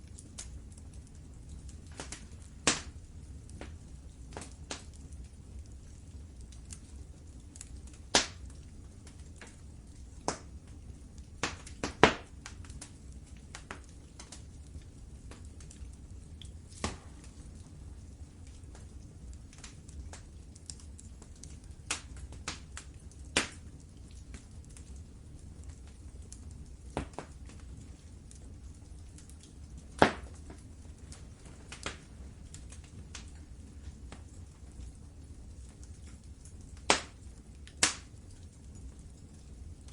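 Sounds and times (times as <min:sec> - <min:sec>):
low steady rumble: 0:00.0 - 0:39.9
wood fire crackling: 0:00.0 - 0:39.9
loud pop from fire: 0:02.0 - 0:03.0, 0:08.1 - 0:08.4, 0:11.4 - 0:12.3, 0:16.7 - 0:17.3, 0:23.4 - 0:23.6, 0:30.0 - 0:30.6, 0:36.9 - 0:37.2, 0:37.8 - 0:38.1.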